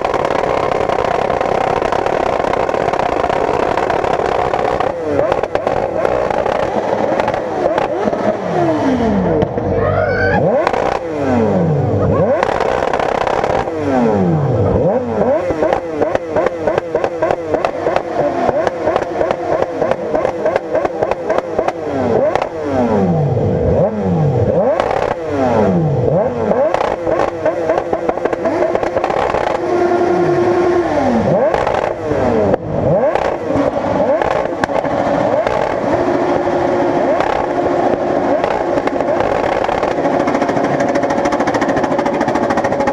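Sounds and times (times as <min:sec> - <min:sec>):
engine pops: 0:00.0 - 0:08.4
motorcycle engines revving: 0:00.0 - 0:42.9.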